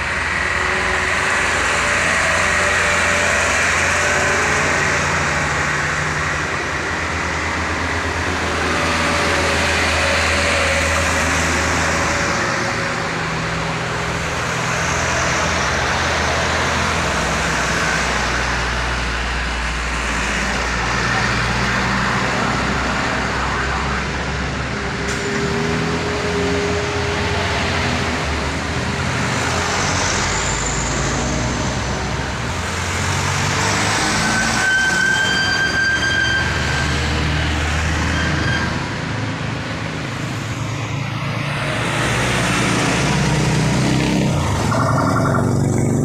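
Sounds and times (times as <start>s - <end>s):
heavy trucks labouring uphill: 0.0s - 46.0s
road traffic: 0.0s - 46.0s.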